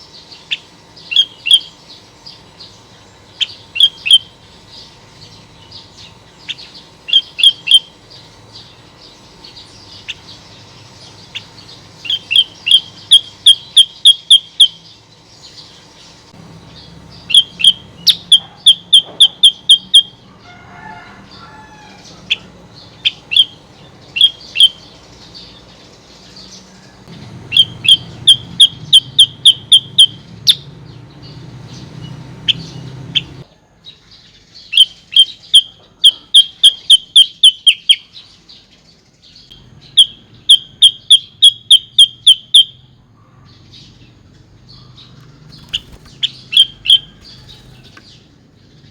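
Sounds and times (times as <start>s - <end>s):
bulbul chirping: 0.0s - 20.2s, 22.2s - 25.6s, 27.1s - 33.5s, 34.6s - 38.2s, 39.5s - 43.0s, 43.6s - 48.9s
steady low hum: 0.0s - 20.5s.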